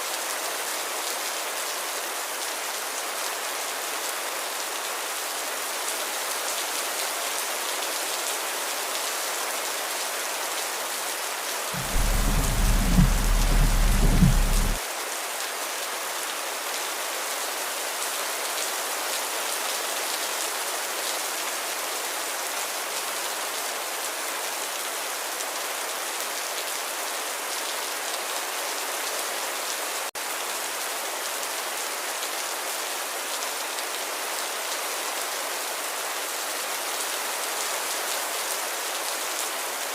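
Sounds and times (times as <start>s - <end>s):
gentle rain: 0.0s - 39.9s
loud deep rumble: 11.8s - 14.8s.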